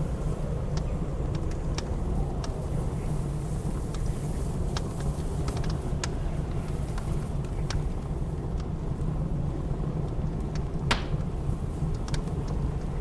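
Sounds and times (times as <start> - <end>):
blizzard wind rumbling: 0.0 - 13.0
fire popping: 0.0 - 13.0
wood fire crackling: 0.0 - 13.0.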